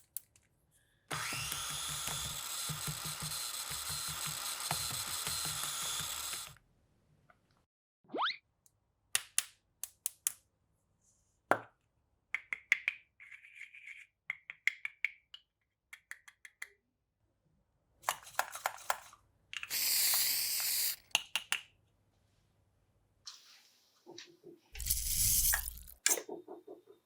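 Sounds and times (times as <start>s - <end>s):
plastic toy pieces clicking: 18.1s - 21.6s, 24.8s - 26.2s.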